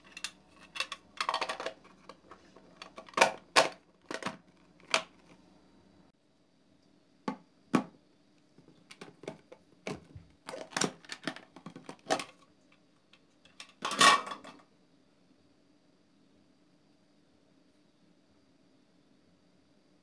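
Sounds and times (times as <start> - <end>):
plastic lid clattering: 0.0 - 5.4, 8.9 - 12.4.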